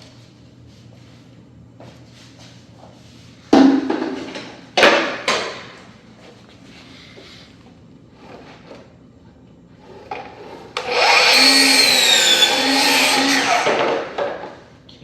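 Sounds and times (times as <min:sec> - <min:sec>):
power tool cutting laminate: 0:10.8 - 0:14.2.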